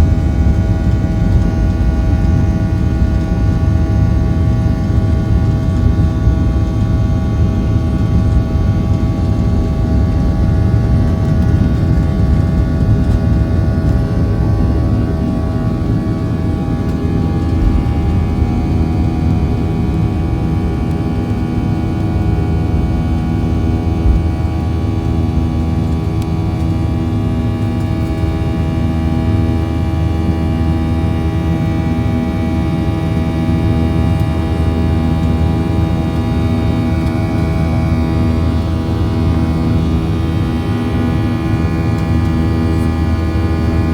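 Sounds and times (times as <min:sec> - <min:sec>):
low rumble: 0:00.0 - 0:32.4
jet engine drone in cabin: 0:00.0 - 0:43.9
whining engine tones: 0:11.3 - 0:27.9.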